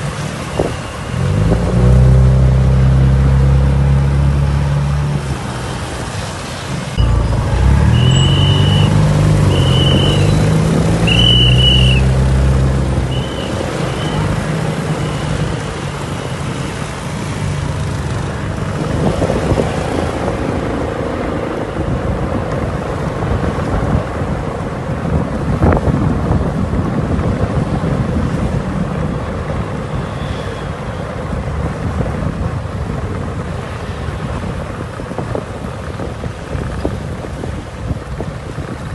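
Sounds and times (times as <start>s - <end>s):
wind and road noise: 0.0s - 38.9s
car engine pulling hard: 0.5s - 15.9s
short high tones: 7.0s - 10.5s.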